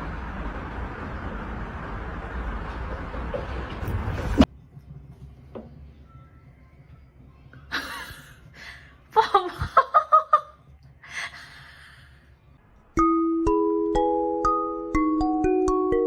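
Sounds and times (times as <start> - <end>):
person laughing: 7.7 - 8.4, 9.2 - 10.6
tinkling mallet percussion music: 13.0 - 16.0.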